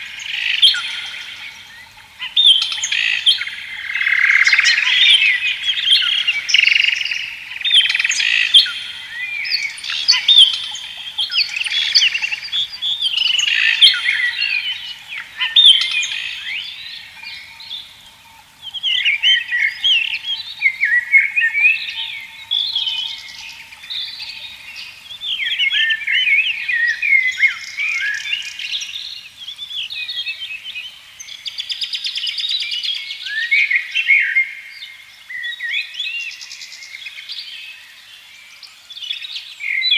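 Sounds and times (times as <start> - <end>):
birds chirping and whistling: 0.0 - 30.6.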